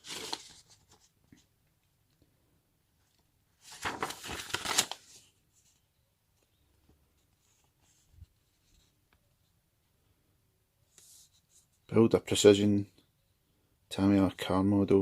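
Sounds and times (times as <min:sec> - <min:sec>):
paper rustling: 0:00.0 - 0:01.4, 0:03.1 - 0:05.8.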